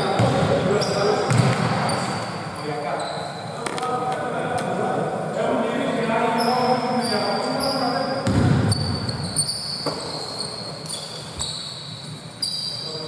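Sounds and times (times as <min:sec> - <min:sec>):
shoes squeaking on court: 0:00.0 - 0:04.0, 0:06.4 - 0:13.0
players' voices: 0:00.0 - 0:08.7.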